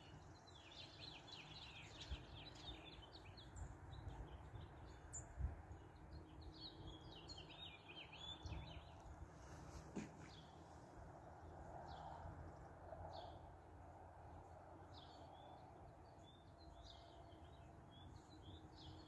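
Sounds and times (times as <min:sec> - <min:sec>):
birds twittering: 0:00.0 - 0:09.1, 0:09.8 - 0:10.8, 0:14.9 - 0:19.0.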